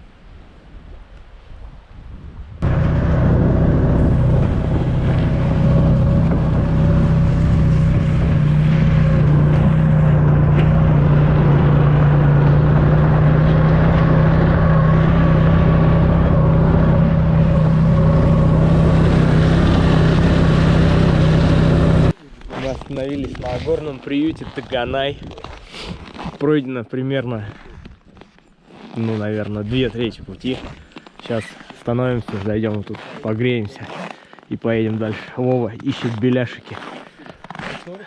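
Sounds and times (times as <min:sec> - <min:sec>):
snowmobile engine droning: 0:02.6 - 0:22.2.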